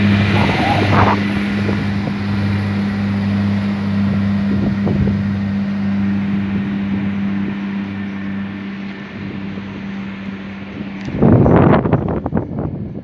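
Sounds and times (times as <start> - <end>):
diesel engine low hum: 0.0 - 13.0
wheel and track noise: 6.2 - 13.0.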